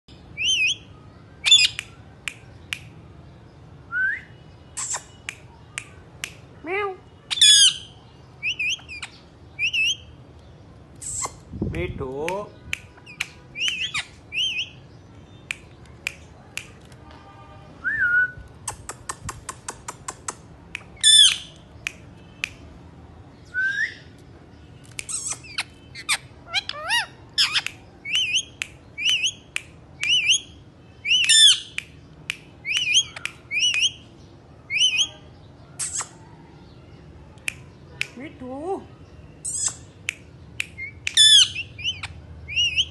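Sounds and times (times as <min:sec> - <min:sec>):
parrot squawks: 0:07.3 - 0:10.0, 0:25.1 - 0:29.4, 0:40.8 - 0:42.9
parrot clicks: 0:18.6 - 0:22.6
parrot rising chirps: 0:40.8 - 0:42.9.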